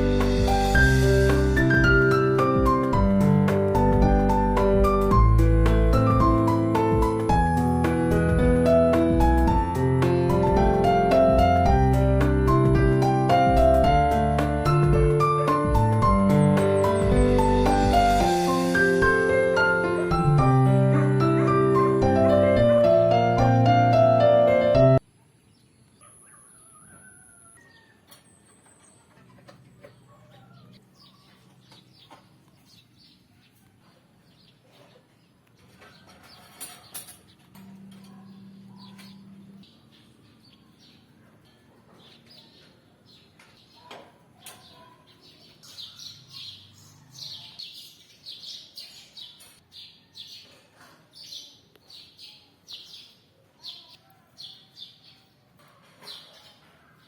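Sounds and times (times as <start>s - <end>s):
piano music: 0.0s - 25.0s
small birds chirping: 16.2s - 18.3s, 25.0s - 57.0s.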